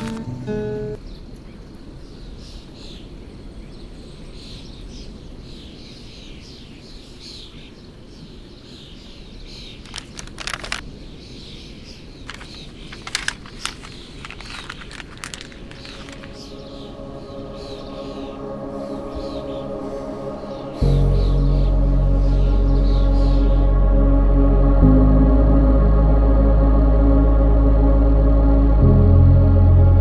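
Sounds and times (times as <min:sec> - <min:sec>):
birds chirping: 0:06.5 - 0:23.8.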